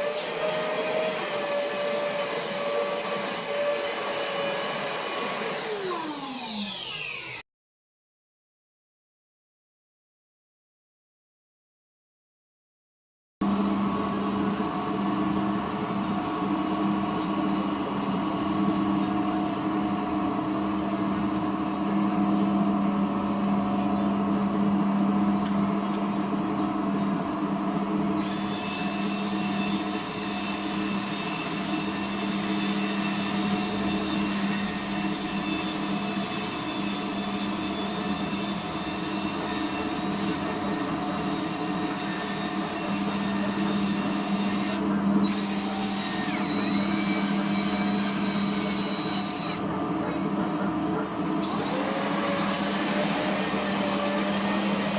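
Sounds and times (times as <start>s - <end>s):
motor humming: 0.0s - 7.4s, 51.4s - 54.9s.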